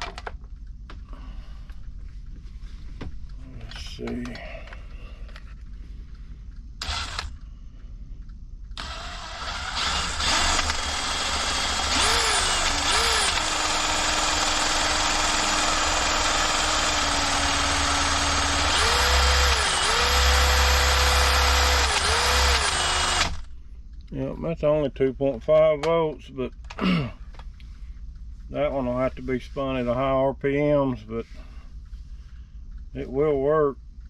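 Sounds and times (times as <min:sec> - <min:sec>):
electric drill motor whine: 0:06.8 - 0:07.4, 0:08.8 - 0:23.5.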